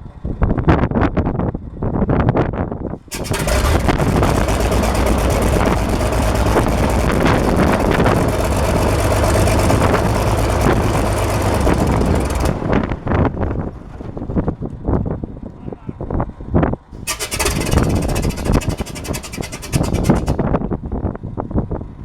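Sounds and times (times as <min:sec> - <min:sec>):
aircraft engine running: 0:03.0 - 0:14.2, 0:17.0 - 0:20.4.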